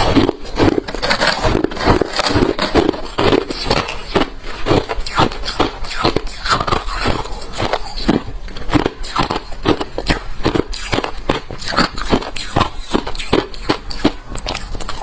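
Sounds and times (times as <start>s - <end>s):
chewing ice crunching: 0.0s - 15.0s.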